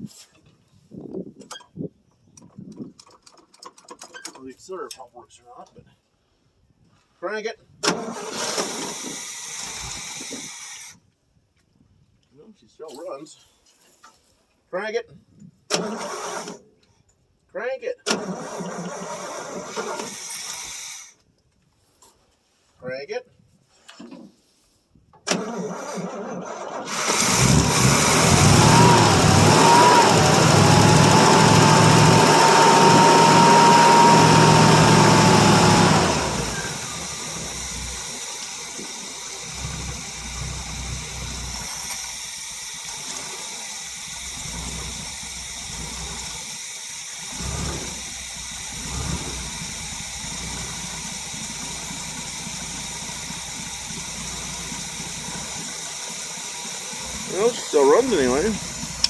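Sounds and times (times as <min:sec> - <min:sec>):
engine starting: 0:02.5 - 0:04.5, 0:07.8 - 0:11.0, 0:15.7 - 0:16.8, 0:18.0 - 0:21.2, 0:25.2 - 0:59.0
engine whine: 0:25.8 - 0:59.0
engine idling: 0:26.9 - 0:59.0.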